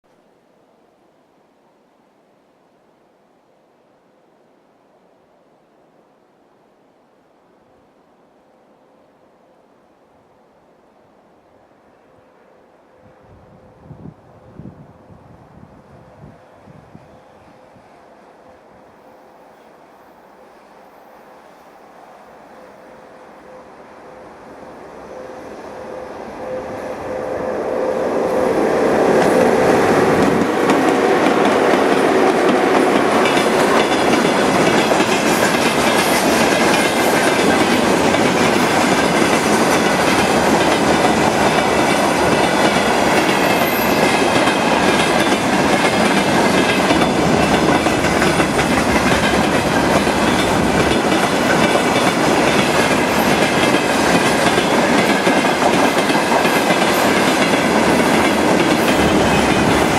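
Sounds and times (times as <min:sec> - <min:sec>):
freight train rumbling past: 0:11.8 - 0:59.9
wheels clacking over rail joints: 0:28.3 - 0:59.9.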